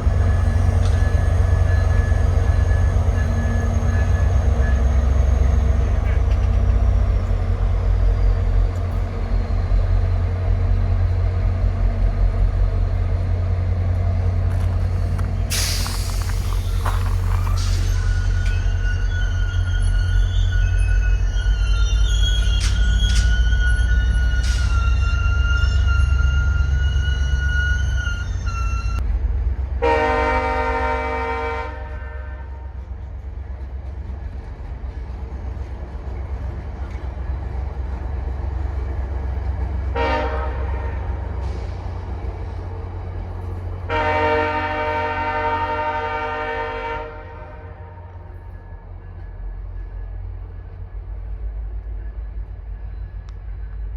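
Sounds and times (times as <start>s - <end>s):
diesel locomotive idling: 0.0s - 53.9s
compressed air hissing: 14.9s - 18.2s
high steady squeal: 15.1s - 29.0s
train air horn blast: 29.8s - 32.8s, 39.9s - 41.7s, 43.9s - 48.1s.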